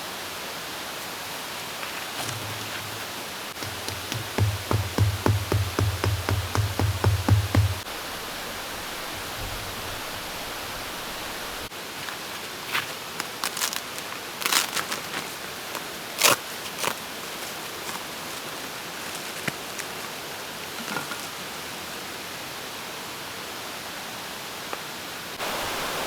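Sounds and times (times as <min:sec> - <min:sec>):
stream flowing over rocks: 0:03.1 - 0:11.7, 0:25.4 - 0:26.0.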